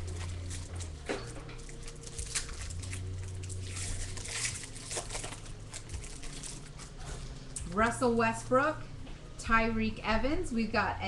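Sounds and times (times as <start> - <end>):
wrapper rustling and crinkling: 0.0 - 7.6.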